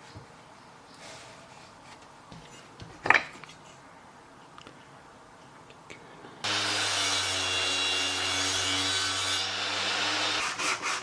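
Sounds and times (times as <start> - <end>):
power tool on wood: 6.4 - 10.6.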